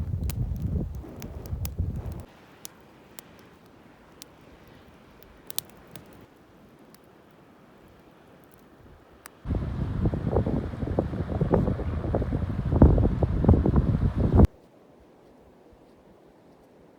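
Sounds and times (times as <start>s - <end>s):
wind buffeting microphone: 0.0s - 2.3s, 9.5s - 14.5s.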